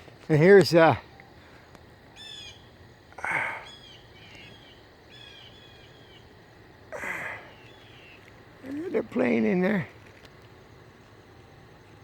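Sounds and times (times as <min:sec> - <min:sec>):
thin repeated bird chirps: 0:02.1 - 0:02.8, 0:03.6 - 0:06.4, 0:07.4 - 0:08.3
blue jays calling: 0:02.1 - 0:06.4, 0:07.0 - 0:09.6.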